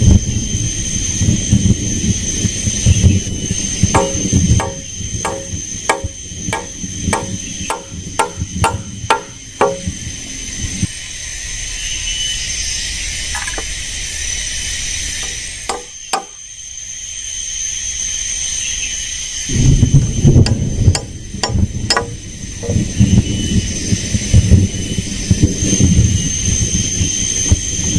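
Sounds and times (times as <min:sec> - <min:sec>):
forest ambience hiss: 0:00.0 - 0:27.9
chopping knocks: 0:04.0 - 0:09.9, 0:15.7 - 0:16.4, 0:20.5 - 0:22.8.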